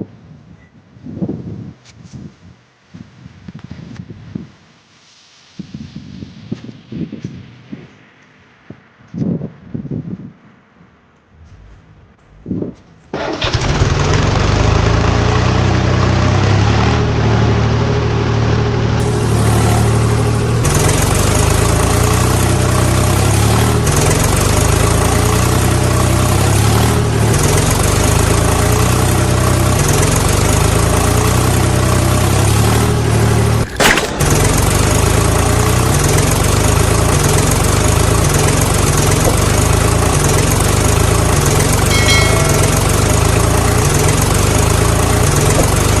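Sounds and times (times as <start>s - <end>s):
tractor engine idling: 11.5s - 46.0s.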